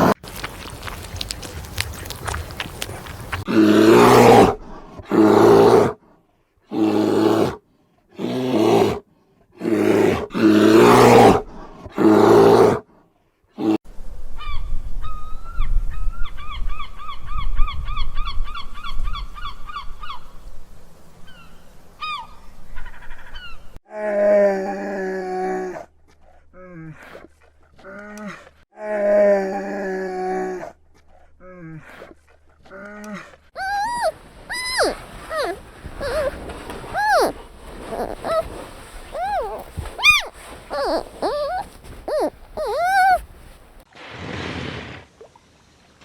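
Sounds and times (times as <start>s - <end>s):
bird chirping: 33.6s - 38.5s, 39.1s - 43.8s
honking animal calls: 33.6s - 43.4s.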